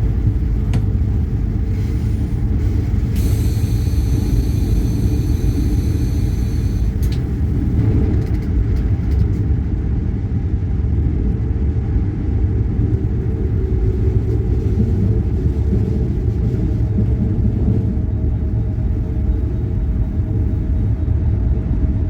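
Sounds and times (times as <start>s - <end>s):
train rumbling on track: 0.0s - 22.0s
click: 7.0s - 7.3s.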